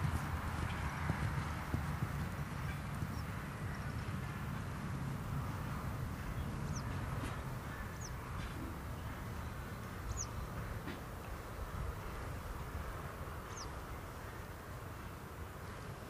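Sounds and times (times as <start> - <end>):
bird chirping: 7.6 - 10.8, 13.5 - 14.2.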